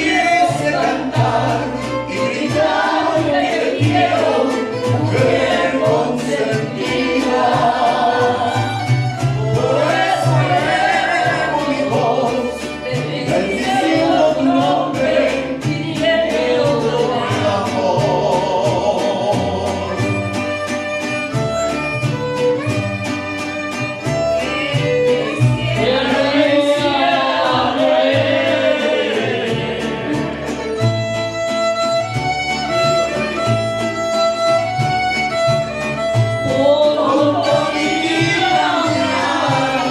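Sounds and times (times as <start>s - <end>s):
violins playing: 0.0s - 17.7s, 19.7s - 39.9s
voices singing: 0.0s - 20.2s, 24.3s - 31.3s, 36.3s - 39.9s
rhythmic bass line: 24.2s - 39.9s.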